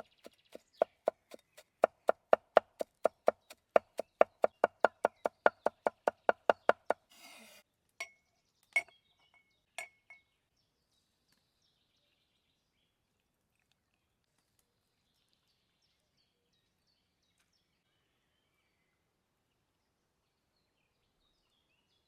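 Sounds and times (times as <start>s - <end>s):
knife chopping on cutting board: 0.0s - 7.0s.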